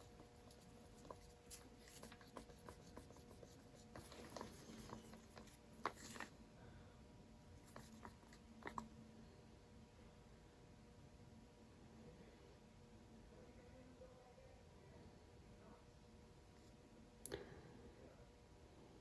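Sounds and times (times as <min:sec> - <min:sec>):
taps and scrapes of cups and tools: 0:00.0 - 0:06.3
faint steady hum: 0:00.0 - 0:19.0.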